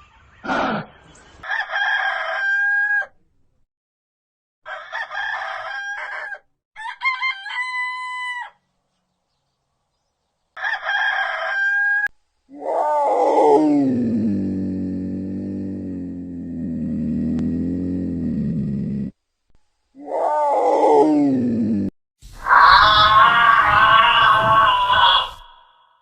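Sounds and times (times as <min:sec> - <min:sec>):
rooster crowing: 0:01.4 - 0:03.2, 0:04.6 - 0:08.6, 0:10.6 - 0:13.3, 0:22.4 - 0:26.0
deep drawn-out animal call: 0:12.5 - 0:19.2, 0:20.0 - 0:26.0.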